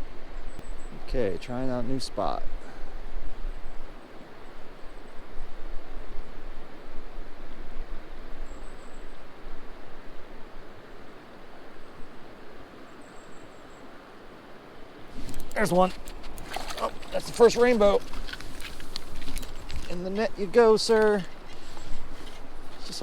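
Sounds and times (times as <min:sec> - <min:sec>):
river water rushing: 0:14.4 - 0:23.0.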